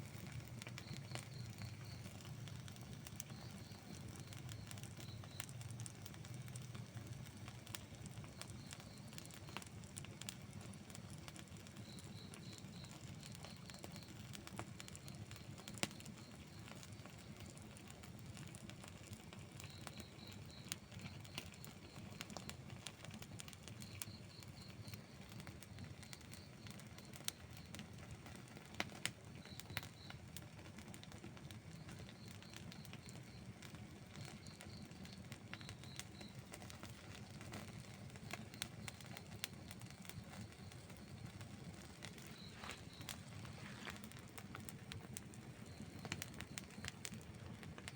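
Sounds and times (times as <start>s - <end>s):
campfire flames rumbling: 0.0s - 47.9s
fire crackling and popping: 0.0s - 47.9s
faint high chirp: 0.6s - 6.0s, 11.7s - 17.6s, 19.6s - 22.6s, 23.7s - 27.8s, 31.7s - 33.5s, 34.2s - 44.6s, 45.6s - 47.2s.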